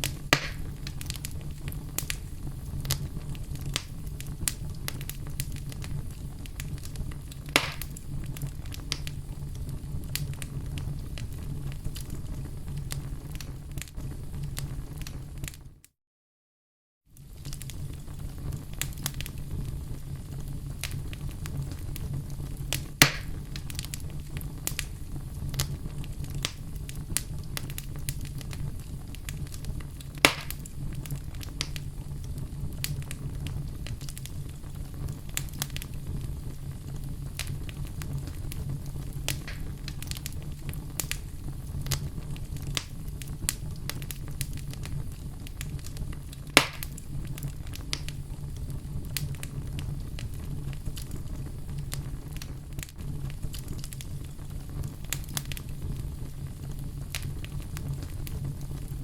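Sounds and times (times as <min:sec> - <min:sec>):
wood fire crackling: 0:00.0 - 0:15.8, 0:17.1 - 0:59.0.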